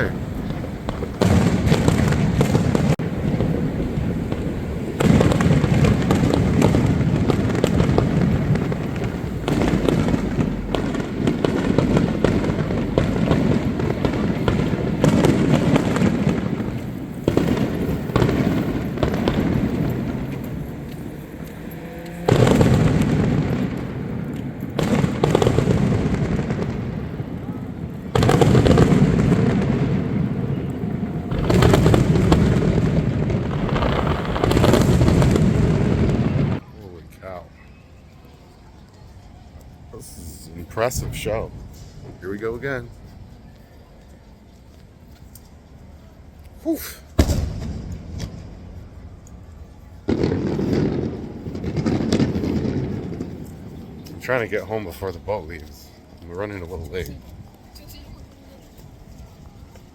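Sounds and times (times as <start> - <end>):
firework shells booming: 0.0 - 36.6, 46.9 - 49.2, 50.0 - 55.6
rolling rumble and crackle: 0.0 - 59.9.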